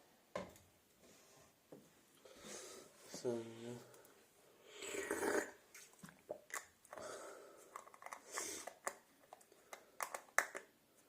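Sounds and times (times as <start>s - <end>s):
objects clicking and tapping: 7.7s - 10.7s.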